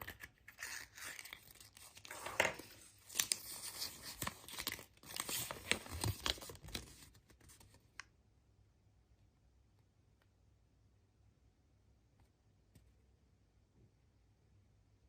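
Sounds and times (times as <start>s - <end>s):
wrapper tearing and crinkling: 0.1s - 7.0s.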